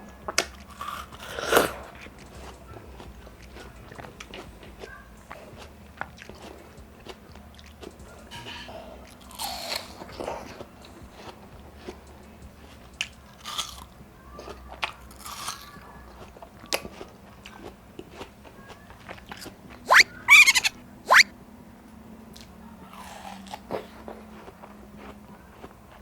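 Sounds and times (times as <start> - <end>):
chewing crisp watermelon: 0.0 - 21.3, 22.3 - 26.0
sharp squeaky bites: 19.4 - 21.3.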